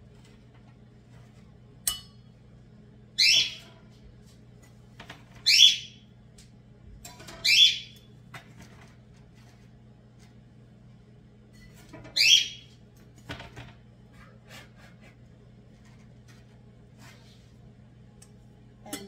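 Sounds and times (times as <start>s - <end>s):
steady low hum: 0.0s - 19.0s
bird calling high: 3.2s - 3.7s, 5.4s - 6.0s, 7.4s - 8.0s, 12.2s - 12.7s.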